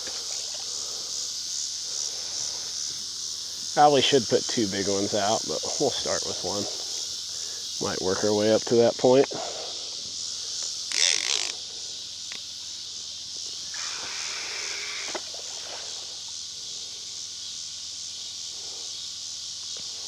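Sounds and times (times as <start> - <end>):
crickets and insects chirping: 0.0 - 20.0.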